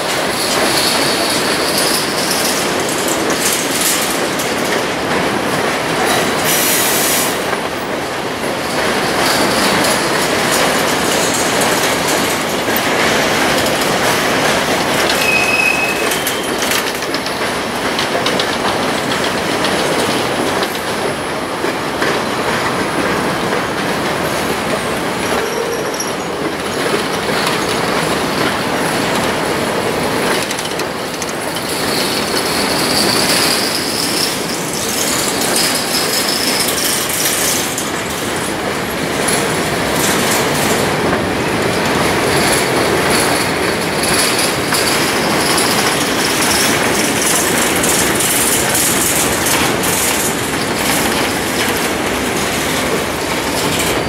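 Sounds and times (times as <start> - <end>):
train wheels rumbling on rail: 0.0 - 54.0
wheel squeal: 15.1 - 16.8, 25.4 - 26.4.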